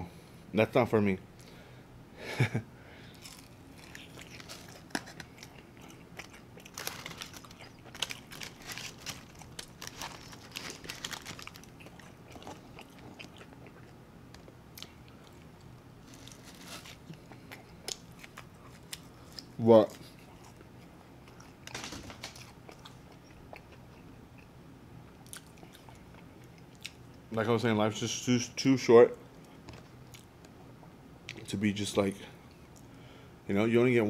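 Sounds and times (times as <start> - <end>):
person chewing crispy food: 3.0 - 24.5, 25.2 - 27.2.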